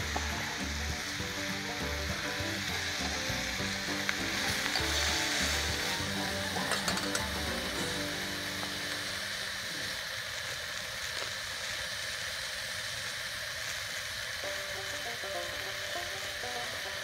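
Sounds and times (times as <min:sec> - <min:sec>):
background music: 0:00.0 - 0:09.7, 0:14.4 - 0:17.0
food sizzling on a griddle: 0:00.0 - 0:17.0.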